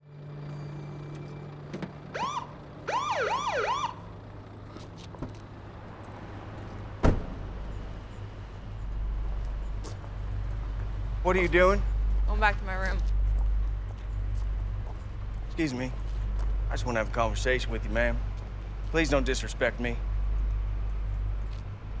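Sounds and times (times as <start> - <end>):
car engine idling: 0.8 - 22.0
police siren whoop chirps: 2.2 - 4.0
sharp thump: 6.9 - 8.3.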